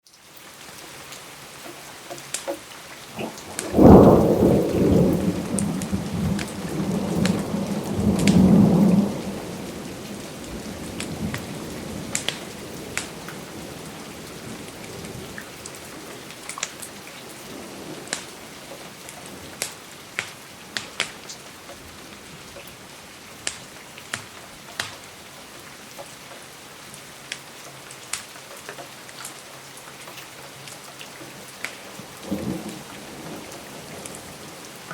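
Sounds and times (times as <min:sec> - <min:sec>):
steady rain: 0:00.0 - 0:34.9
wood fire crackling: 0:03.1 - 0:08.5, 0:10.1 - 0:21.9
thunder rumbling: 0:03.1 - 0:19.6, 0:32.0 - 0:34.9.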